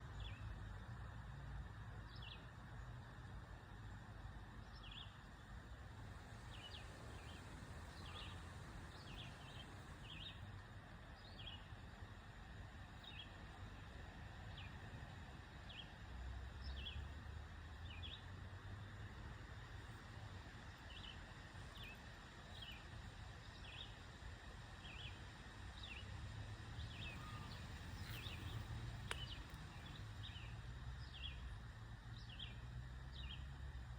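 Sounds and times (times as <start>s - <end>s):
faint background hiss and rumble: 0.0s - 33.9s
bird chirping: 26.8s - 31.4s.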